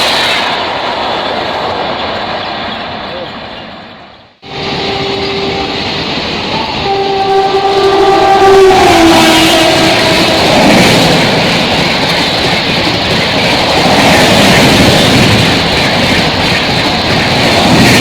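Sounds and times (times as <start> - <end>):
train rushing past: 0.0 - 18.0
train horn: 4.4 - 11.4.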